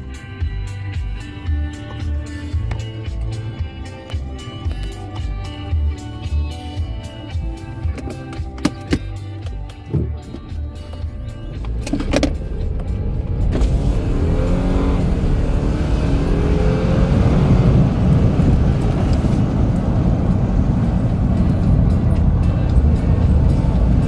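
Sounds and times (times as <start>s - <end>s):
music playing: 0.0s - 24.0s
car engine revving: 10.7s - 24.0s.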